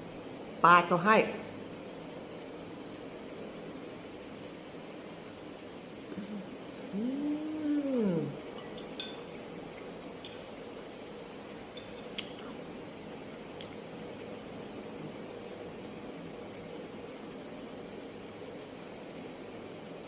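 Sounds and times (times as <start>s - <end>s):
steady high-pitched whine: 0.0s - 20.0s
cutlery clinking against a dish: 8.5s - 9.4s, 10.2s - 10.5s, 11.8s - 12.1s.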